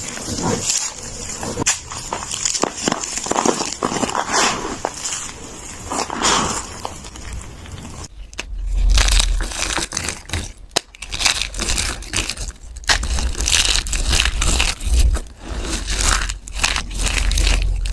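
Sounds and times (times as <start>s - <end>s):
low rumble: 5.4s - 17.9s
soap crushed by hand crunching: 8.4s - 17.9s.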